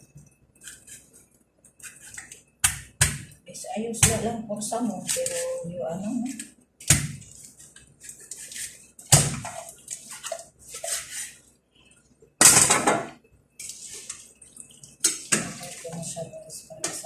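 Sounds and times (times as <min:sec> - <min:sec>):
water splashing and pouring: 0:13.6 - 0:16.1.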